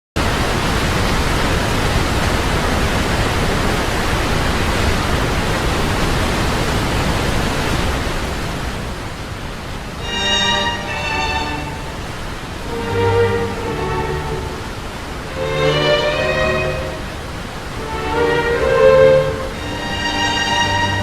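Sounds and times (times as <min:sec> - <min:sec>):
steady rushing noise: 0:00.2 - 0:21.0
music with held string notes: 0:10.0 - 0:12.0, 0:12.7 - 0:17.2, 0:17.8 - 0:21.0.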